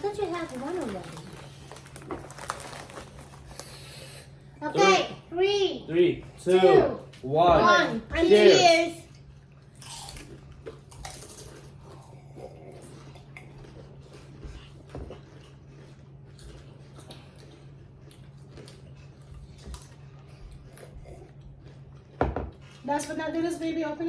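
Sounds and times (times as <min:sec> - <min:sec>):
chips crunching: 0:00.0 - 0:04.0, 0:09.8 - 0:11.9.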